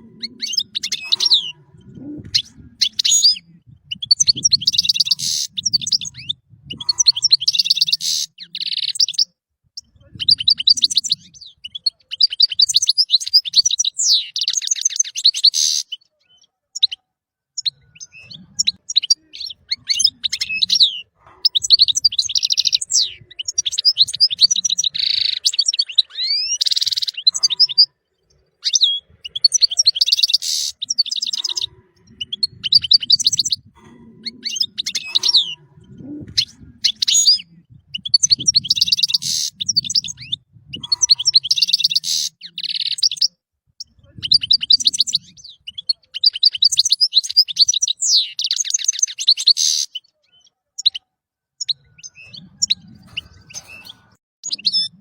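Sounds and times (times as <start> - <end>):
goldfinch singing: 0.0 - 9.2, 17.6 - 43.2.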